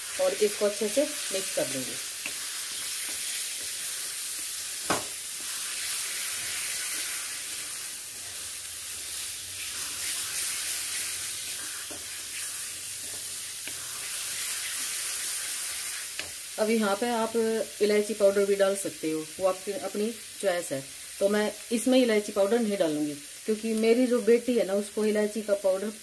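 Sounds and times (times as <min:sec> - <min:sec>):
food sizzling in a pan: 0:00.0 - 0:26.0
spatula stirring and scraping: 0:02.0 - 0:16.3.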